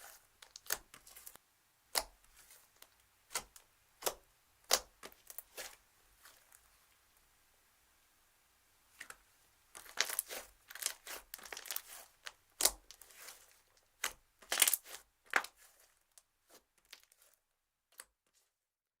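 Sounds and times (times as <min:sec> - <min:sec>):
slime crackling and popping: 0:00.0 - 0:02.5, 0:09.8 - 0:15.8, 0:16.8 - 0:17.3.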